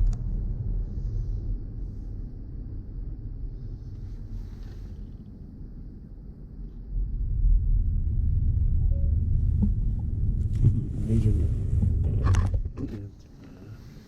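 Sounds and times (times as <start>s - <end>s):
car rumbling on road: 6.9s - 13.6s.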